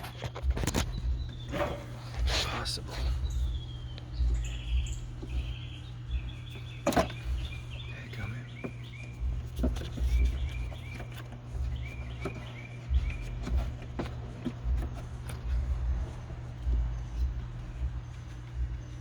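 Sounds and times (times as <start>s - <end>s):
low rumble: 0.0s - 12.2s
small bird chirping: 0.0s - 19.0s.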